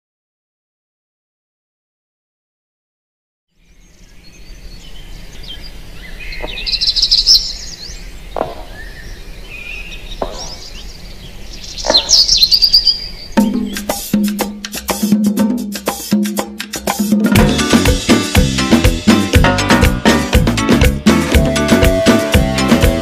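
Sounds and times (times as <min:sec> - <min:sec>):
birds chirping and twittering: 0:03.6 - 0:14.8
latin dance music: 0:13.5 - 0:23.0.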